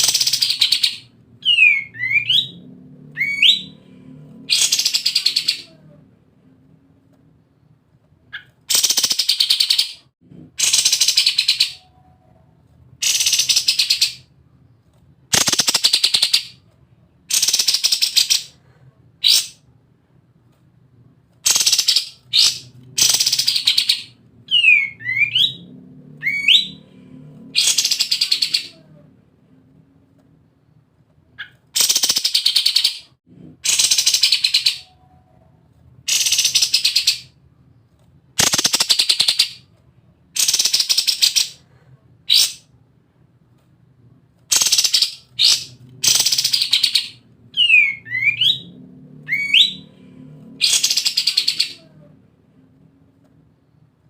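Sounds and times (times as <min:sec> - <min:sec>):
songbird rattling song: 0:15.3 - 0:16.6, 0:38.4 - 0:39.6, 0:44.5 - 0:48.5.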